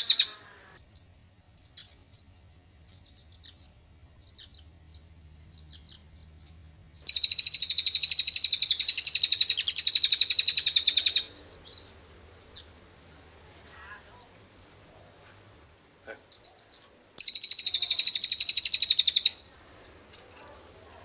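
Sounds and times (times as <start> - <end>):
bird chirps: 0.0 - 12.8, 16.1 - 21.0
bird rattling trill: 5.6 - 12.7, 17.2 - 20.7.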